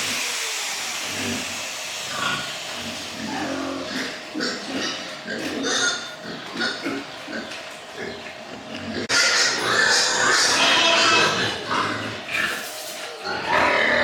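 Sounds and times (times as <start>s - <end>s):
pigs grunting and squealing: 0.0s - 14.0s.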